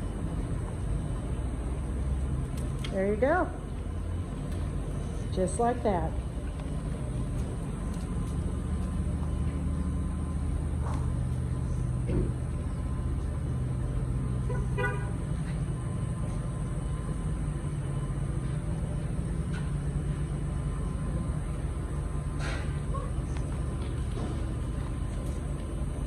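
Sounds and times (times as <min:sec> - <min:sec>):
road traffic rumble: 0:00.0 - 0:26.0
vehicle horn toot: 0:14.4 - 0:15.2.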